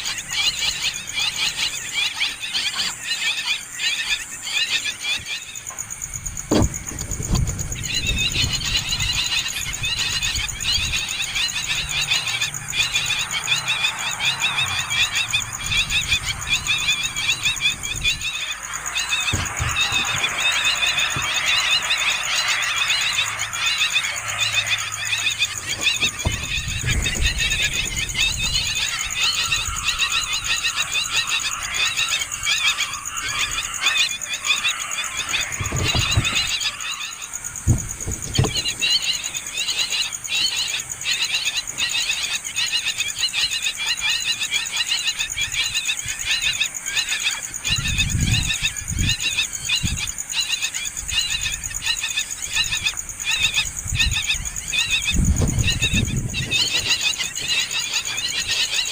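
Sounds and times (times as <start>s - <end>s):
nestling birds begging calls: 0.0s - 58.9s
low thumps: 6.2s - 8.4s, 17.5s - 22.2s.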